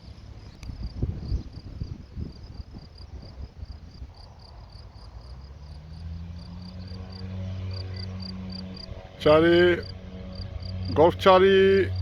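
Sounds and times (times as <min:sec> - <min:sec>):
crickets chirping: 0:00.0 - 0:12.0
propeller aircraft engine drone: 0:00.0 - 0:12.0
loud wavering call: 0:06.4 - 0:12.0.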